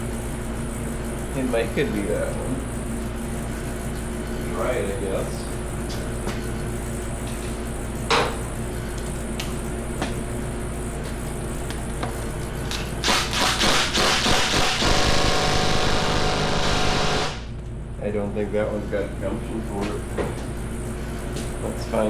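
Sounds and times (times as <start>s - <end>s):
power tool running hard: 13.0s - 17.5s.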